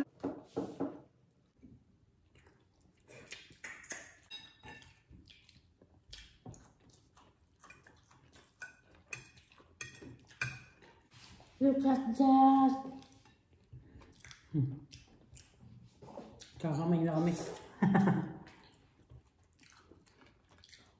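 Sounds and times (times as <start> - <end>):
eating noises: 1.5 - 20.9
plates and cutlery clinking: 3.9 - 5.1.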